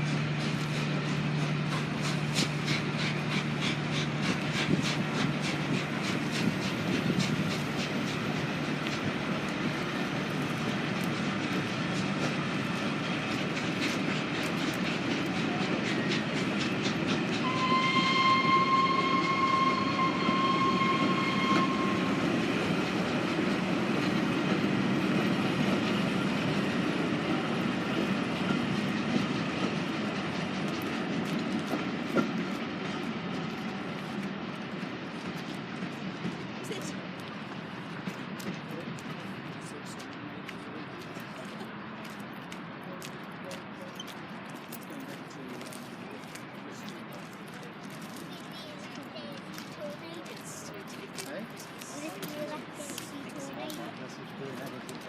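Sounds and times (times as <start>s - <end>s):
train wheels clicking over rail joints: 0.0s - 55.0s
steady warning tone: 17.4s - 22.4s.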